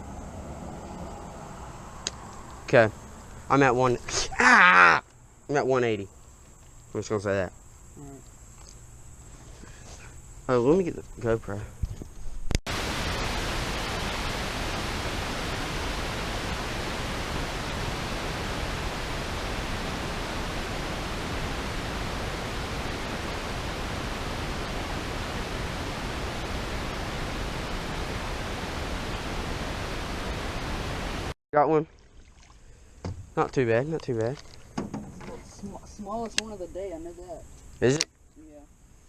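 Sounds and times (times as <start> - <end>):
underwater water hiss: 12.7 - 30.6.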